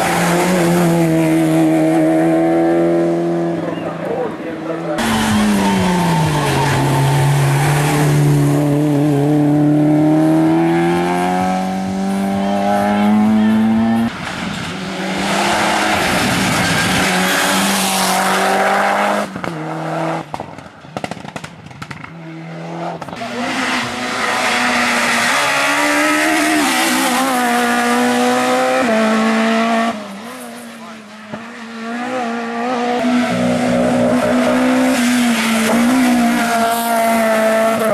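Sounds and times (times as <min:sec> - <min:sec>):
race car engine accelerating: 0:00.0 - 0:14.2.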